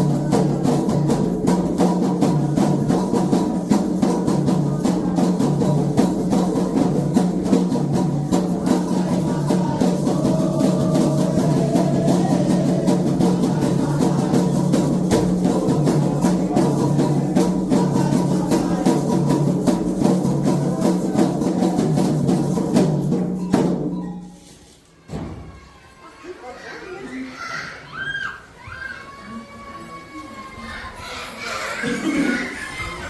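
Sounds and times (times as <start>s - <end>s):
people singing: 0.0s - 23.0s
hand drums playing: 0.0s - 24.5s.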